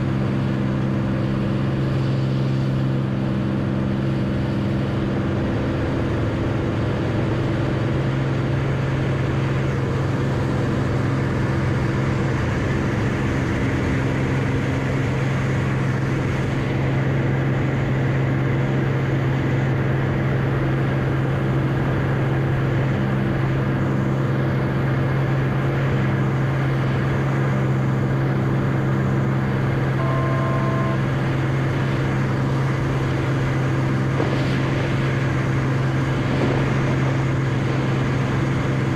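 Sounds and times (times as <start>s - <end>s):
propeller plane engine droning: 0.0s - 38.9s
two-tone beep: 30.0s - 31.2s.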